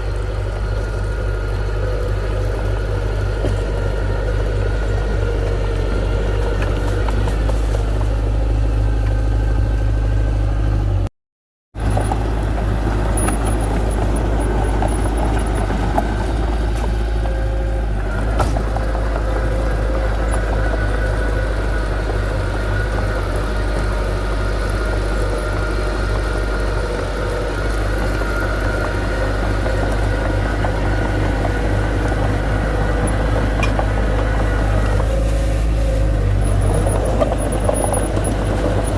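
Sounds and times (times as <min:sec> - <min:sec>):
earthmoving equipment engine: 0:00.0 - 0:11.1, 0:11.8 - 0:38.9
whining tones: 0:11.8 - 0:38.9.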